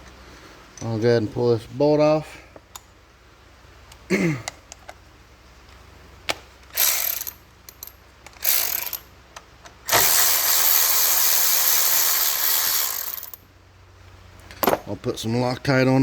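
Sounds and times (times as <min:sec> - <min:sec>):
ratchet wrench clicking: 0:06.7 - 0:09.1, 0:09.9 - 0:13.4.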